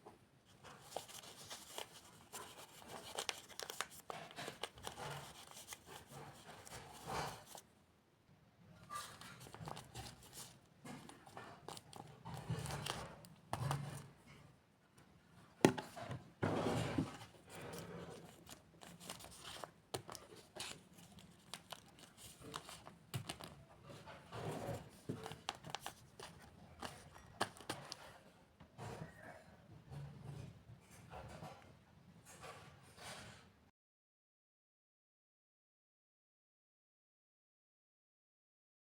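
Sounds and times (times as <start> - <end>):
paper crinkling: 0.6 - 7.6, 8.9 - 14.0, 17.0 - 28.0.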